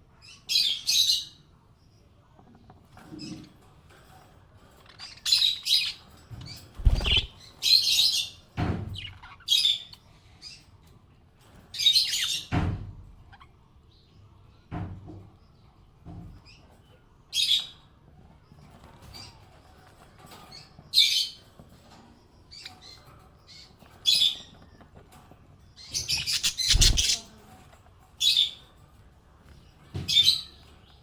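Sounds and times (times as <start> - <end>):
parrots chirping: 6.8 - 8.4, 25.9 - 27.3.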